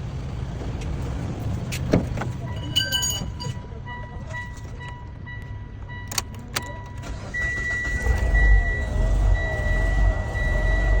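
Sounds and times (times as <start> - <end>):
car engine rumbling: 0.0 - 11.0
high-pitched beep: 2.4 - 11.0.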